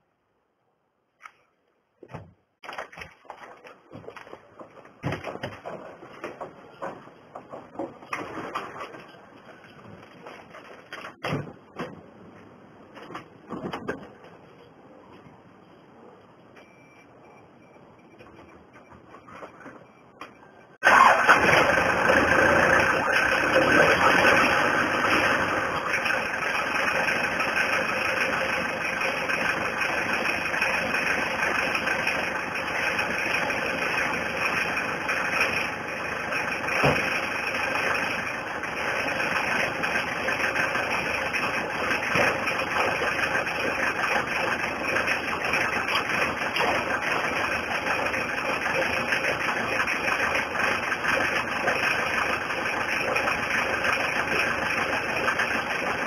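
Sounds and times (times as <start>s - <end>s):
diesel engine idling: 20.8s - 56.0s.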